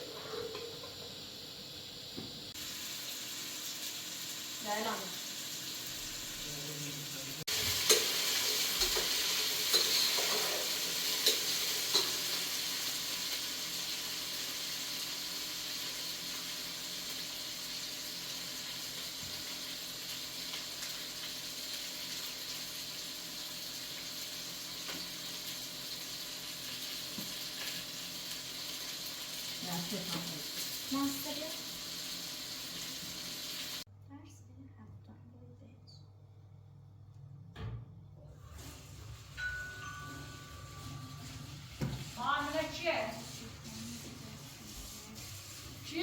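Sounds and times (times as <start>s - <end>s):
food sizzling in a pan: 0.0s - 33.9s, 38.4s - 46.0s.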